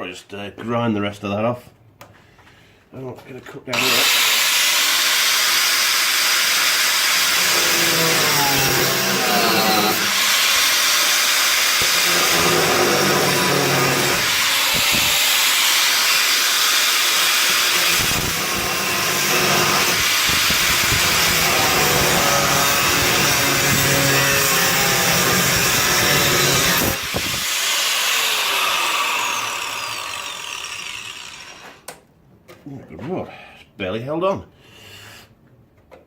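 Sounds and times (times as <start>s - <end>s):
angle grinder grinding steel: 3.7s - 31.9s.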